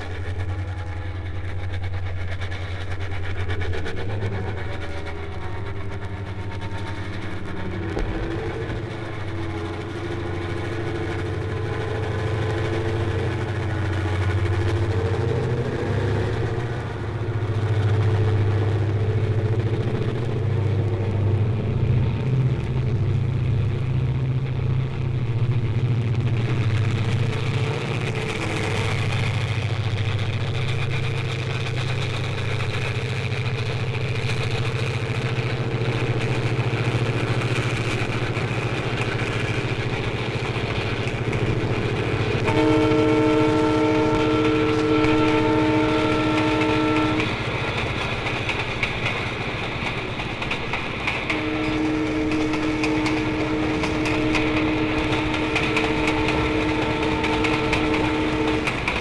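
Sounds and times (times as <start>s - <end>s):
horn blowing: 0.0s - 2.0s, 4.2s - 17.0s, 42.1s - 47.8s, 51.3s - 59.0s
large vehicle engine rumbling: 0.0s - 59.0s.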